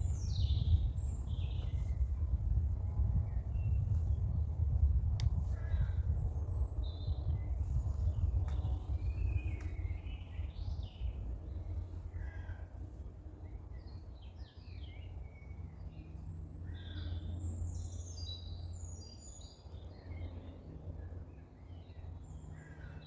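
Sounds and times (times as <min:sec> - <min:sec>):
birds chirping: 0:00.0 - 0:04.5
low rumble: 0:00.0 - 0:12.4.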